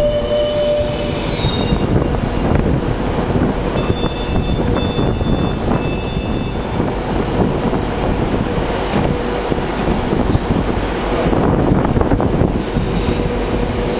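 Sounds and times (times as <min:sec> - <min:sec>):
high-pitched wheel squeal: 0:00.0 - 0:02.7, 0:03.8 - 0:06.8
train rumble and rushing air: 0:00.0 - 0:13.9.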